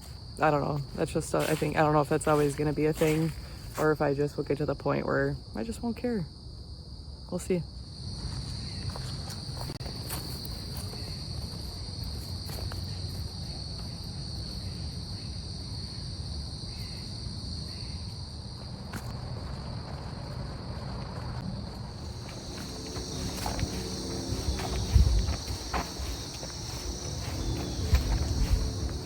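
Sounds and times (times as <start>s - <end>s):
cricket chorus trilling: 0.0s - 29.0s
low rumble: 19.0s - 29.0s.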